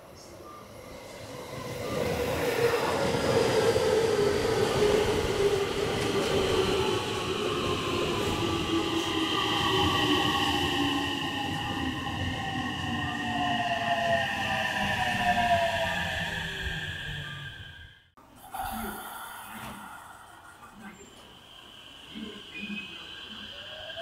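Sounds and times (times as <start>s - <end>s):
train whining tones: 0.0s - 18.1s, 18.7s - 24.0s
electric train rolling: 18.7s - 24.0s.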